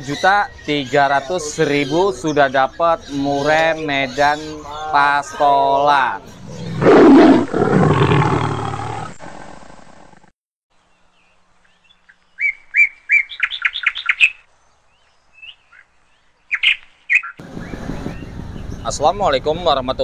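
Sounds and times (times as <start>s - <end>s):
bird chirping: 0.0s - 9.1s, 10.7s - 19.2s
street noise: 17.4s - 20.0s.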